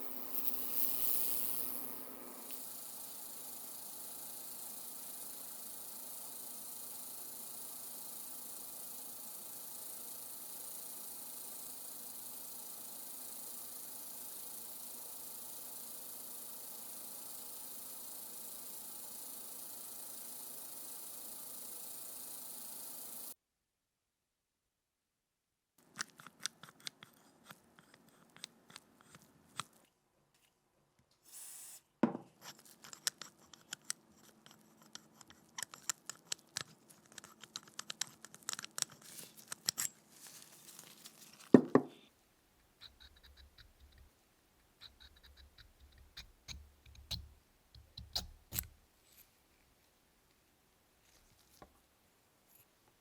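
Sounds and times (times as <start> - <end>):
faint hum: 0.0 - 7.4
tools and metal parts clicking: 32.4 - 41.5.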